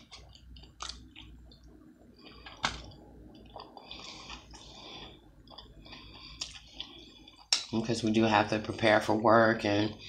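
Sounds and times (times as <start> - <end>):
person chewing wetly: 0.0 - 7.7.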